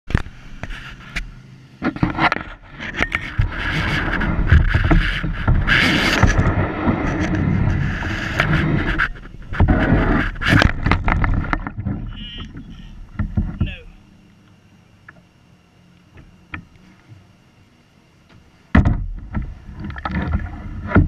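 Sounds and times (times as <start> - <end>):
kayak knocking and scraping: 0.1 - 14.1, 18.3 - 21.0
wind rumbling on microphone: 0.1 - 14.1.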